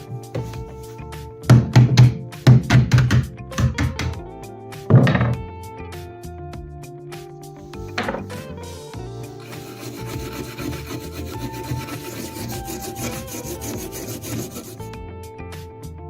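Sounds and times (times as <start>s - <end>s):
background music: 0.0s - 16.0s
hand tool scraping rusty knife: 9.4s - 14.9s.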